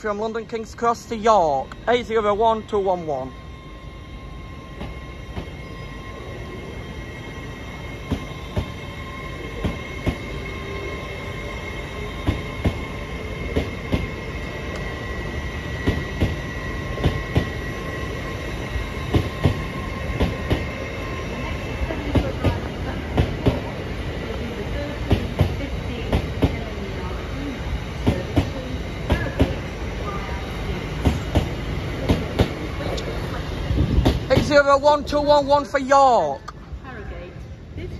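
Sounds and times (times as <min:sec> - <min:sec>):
low train rumble: 0:00.0 - 0:37.9
high wheel squeal: 0:02.0 - 0:13.5.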